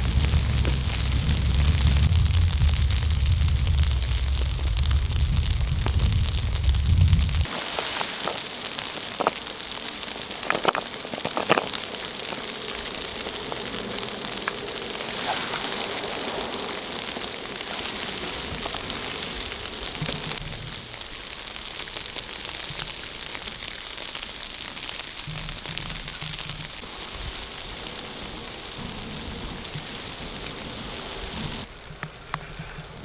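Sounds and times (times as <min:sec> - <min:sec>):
snow pattering on a tent: 0:00.0 - 0:33.0.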